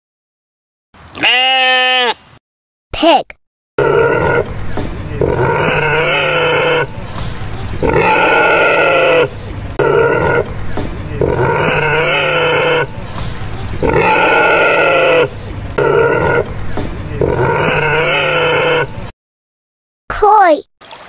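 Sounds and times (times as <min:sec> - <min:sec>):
pigs squealing: 0:01.2 - 0:02.2, 0:03.8 - 0:19.1.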